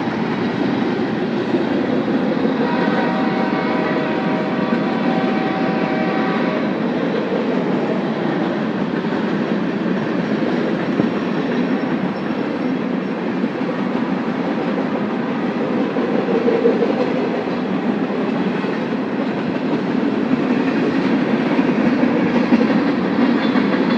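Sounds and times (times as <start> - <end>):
train wheels clacking on rails: 0.0 - 23.9
train horn: 2.4 - 6.8.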